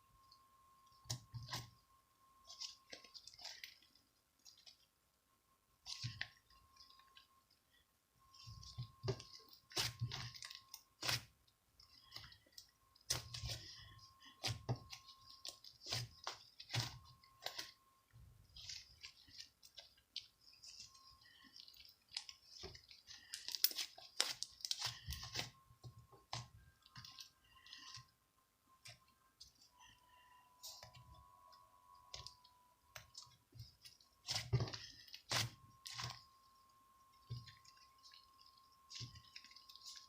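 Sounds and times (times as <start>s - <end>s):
faint steady whine: 0.0s - 40.0s.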